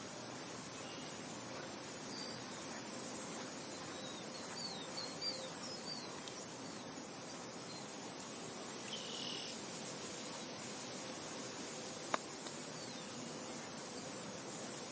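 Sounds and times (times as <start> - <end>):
wind: 0.0 - 14.9
brief high insect buzz: 8.8 - 9.9.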